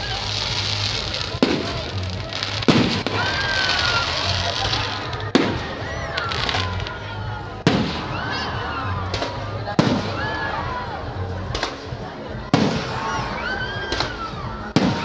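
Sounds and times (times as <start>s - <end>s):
crackling hiss: 0.0s - 15.0s
firework bangs: 0.0s - 15.0s.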